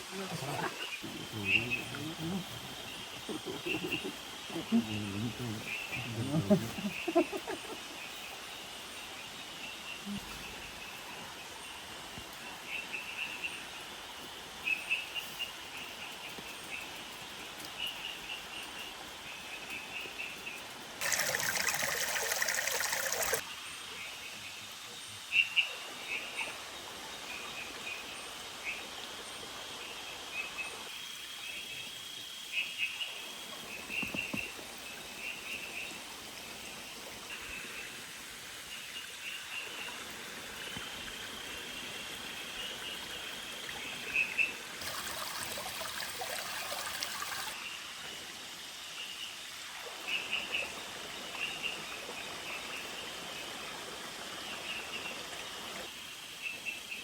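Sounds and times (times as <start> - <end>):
running water hiss: 0.0 - 57.0.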